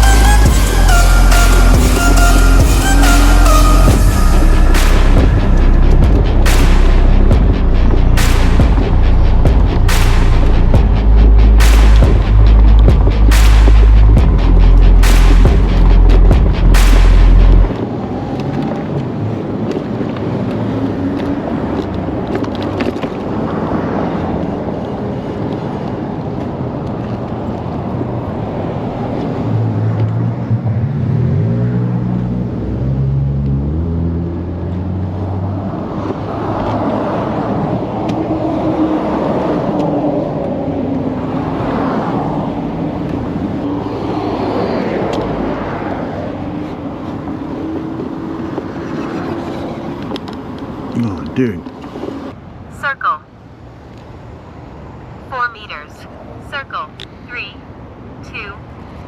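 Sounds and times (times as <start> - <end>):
wind noise: 0.0 - 31.1.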